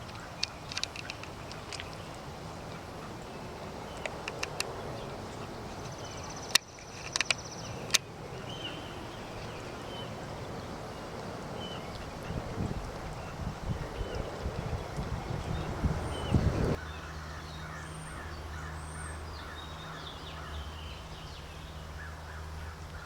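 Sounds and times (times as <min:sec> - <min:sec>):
sharp clicks: 0:00.0 - 0:02.0, 0:04.0 - 0:04.7, 0:06.4 - 0:08.1.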